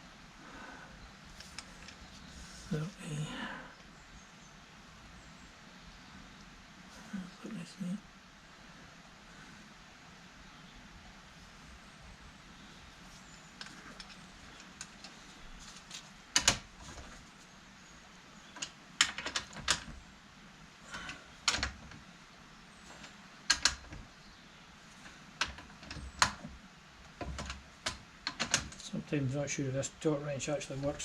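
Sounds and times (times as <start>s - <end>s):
hand tools clicking and knocking: 23.5s - 24.0s, 27.1s - 28.9s.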